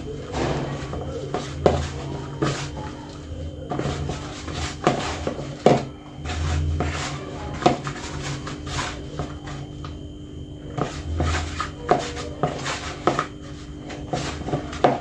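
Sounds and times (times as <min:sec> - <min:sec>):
hands tossing food in flour: 0:00.0 - 0:09.9, 0:10.7 - 0:15.0
knocks against a dish: 0:00.3 - 0:02.9.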